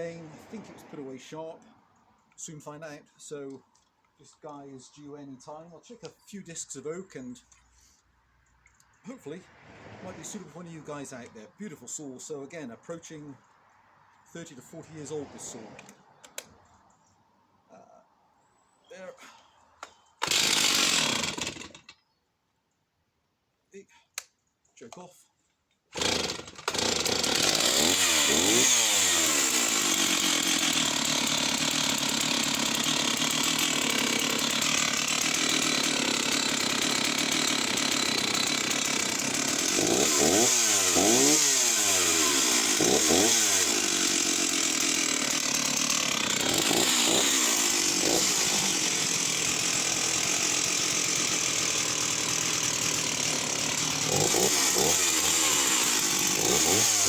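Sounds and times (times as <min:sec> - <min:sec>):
chainsaw cutting wood: 0:00.0 - 0:01.7, 0:09.6 - 0:11.8, 0:14.3 - 0:16.6, 0:19.8 - 0:22.0, 0:25.8 - 0:57.0.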